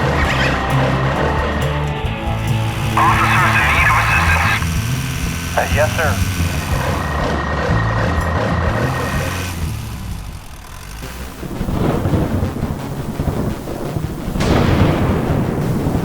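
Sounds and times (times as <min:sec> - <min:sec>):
low rumbling noise: 0:00.0 - 0:16.0
sudden rush: 0:00.0 - 0:16.0.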